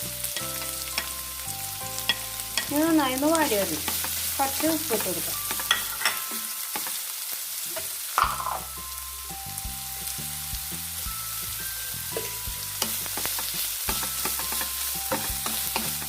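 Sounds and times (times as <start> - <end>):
onions sizzling in oil: 0.0 - 16.0
spoon stirring in pan: 3.7 - 7.0, 12.2 - 16.0.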